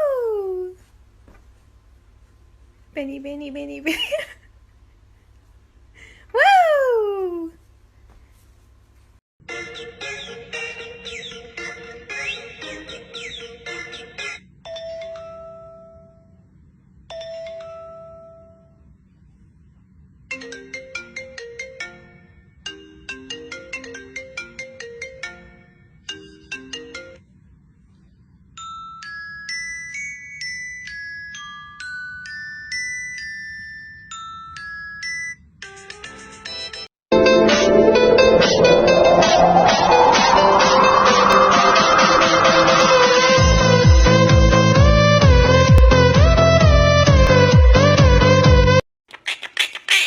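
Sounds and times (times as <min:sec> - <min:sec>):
ringtone-like melodies: 0:37.2 - 0:44.2.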